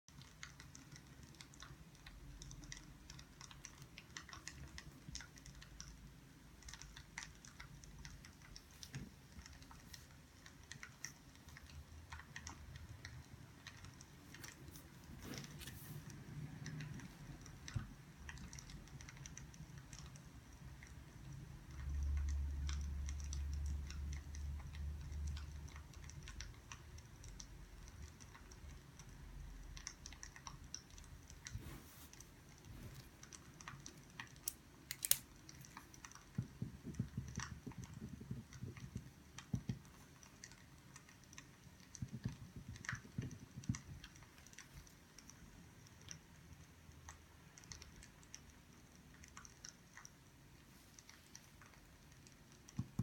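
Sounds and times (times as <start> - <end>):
firewood crackling and popping: 33.3 - 45.3.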